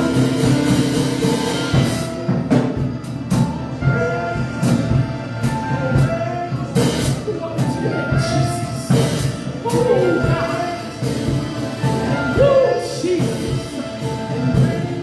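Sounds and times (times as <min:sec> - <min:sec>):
band with steady beat: 0:00.0 - 0:15.0
person singing long held notes: 0:03.8 - 0:15.0.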